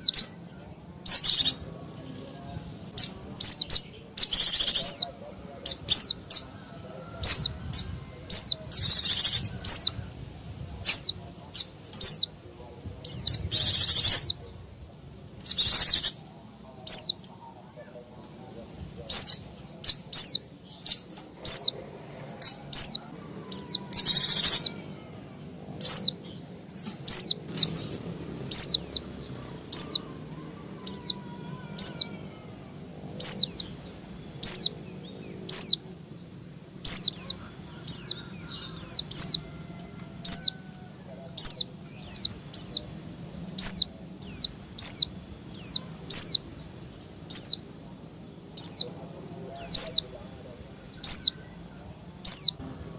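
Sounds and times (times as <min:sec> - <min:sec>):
bird high sweeping call notes: 0:22.4 - 0:25.1, 0:28.5 - 0:32.5, 0:47.3 - 0:47.6
bird harsh rasp: 0:23.6 - 0:25.0.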